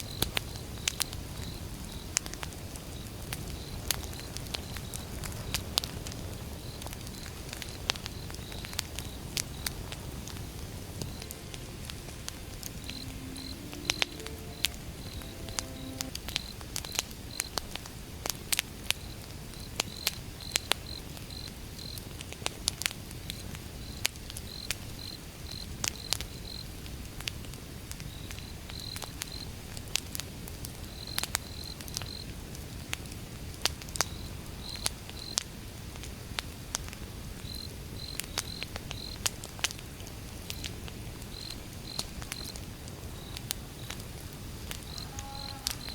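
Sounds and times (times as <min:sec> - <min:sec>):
crickets chirping: 0:00.1 - 0:02.1, 0:06.4 - 0:16.6, 0:44.8 - 0:45.9
wood fire crackling and popping: 0:00.2 - 0:11.3, 0:38.2 - 0:45.0.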